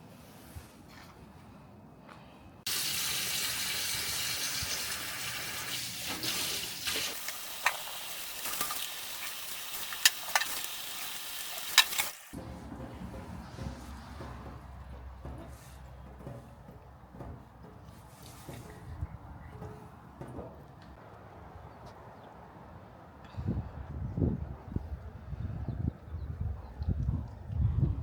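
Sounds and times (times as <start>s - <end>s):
food sizzling in a pan: 2.7s - 12.4s.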